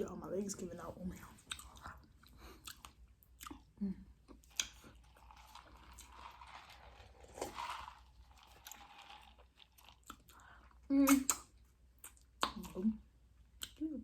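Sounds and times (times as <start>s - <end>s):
chewing and crunching chips: 1.3s - 13.8s
mouth sounds: 10.9s - 11.5s.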